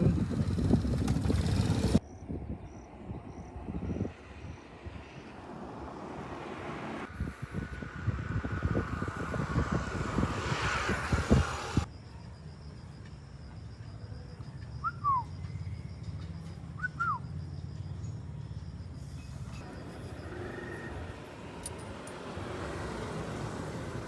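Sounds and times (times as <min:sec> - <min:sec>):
bird whistled calls: 0:16.8 - 0:17.3.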